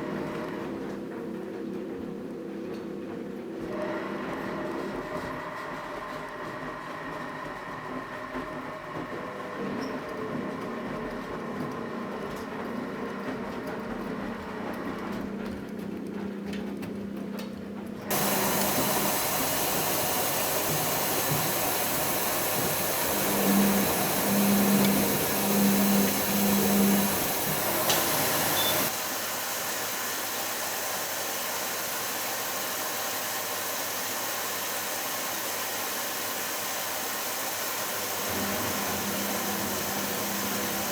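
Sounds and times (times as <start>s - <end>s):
washing machine motor hum: 0.0s - 40.9s
washing machine rushing noise: 0.0s - 40.9s
steady hiss: 18.1s - 31.7s.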